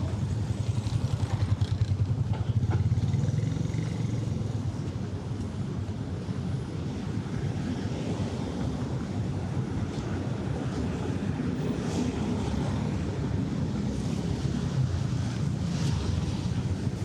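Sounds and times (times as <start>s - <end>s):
vehicle engine rumble: 0.0s - 7.4s
traffic hum: 0.0s - 17.0s.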